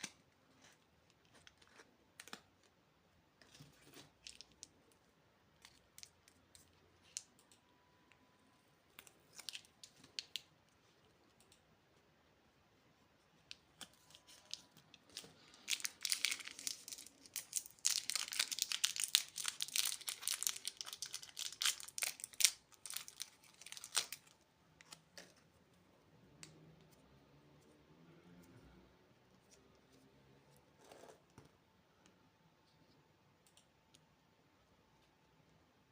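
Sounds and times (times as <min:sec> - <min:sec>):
candy wrapper crinkling and tearing: 0:03.4 - 0:07.3, 0:08.9 - 0:10.8, 0:13.5 - 0:25.4.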